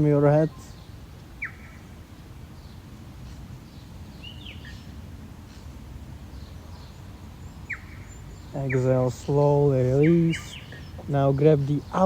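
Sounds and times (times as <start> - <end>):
small bird chirping: 0.0 - 2.0, 2.6 - 12.0
steady low rumble: 4.8 - 12.0.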